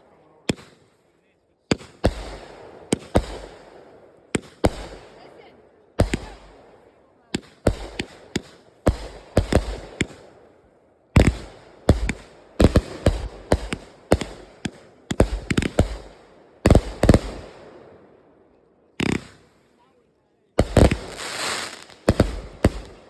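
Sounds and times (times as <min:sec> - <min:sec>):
fireworks bangs: 0:00.0 - 0:01.0, 0:01.7 - 0:10.5, 0:11.2 - 0:18.1, 0:19.0 - 0:19.8, 0:20.6 - 0:23.0.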